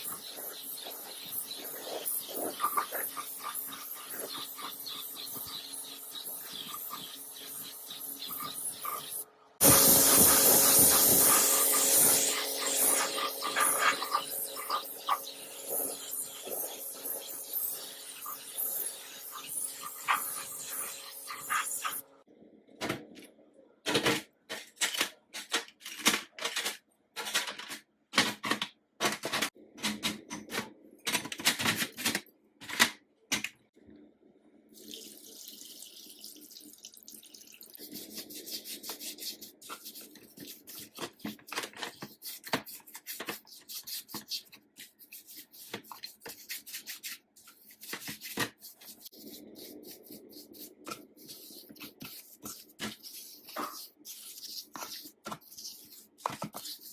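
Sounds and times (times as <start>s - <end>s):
water running from tap: 0.0s - 22.0s, 34.8s - 37.8s.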